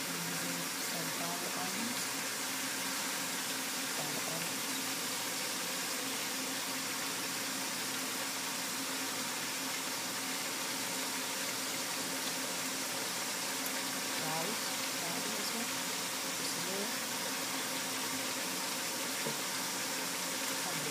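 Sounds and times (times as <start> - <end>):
vegetables sizzling in oil: 0.0 - 20.9.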